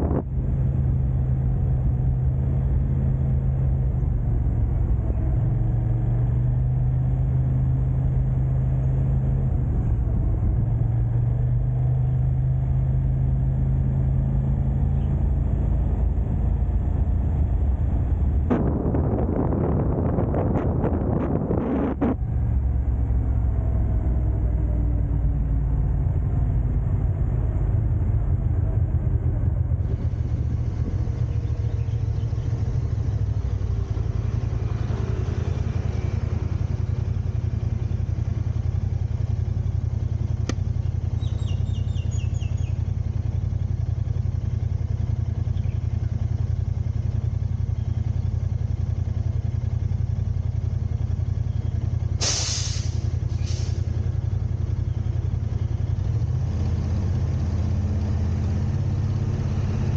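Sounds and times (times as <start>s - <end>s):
car driving rumble: 0.0s - 59.9s
click: 40.4s - 40.6s.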